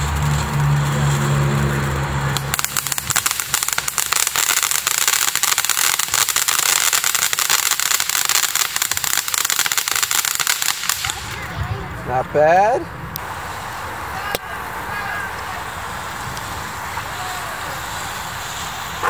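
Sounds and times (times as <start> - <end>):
rapid crackling pops: 0.0 - 11.5
fireworks hissing sparks: 0.0 - 19.0.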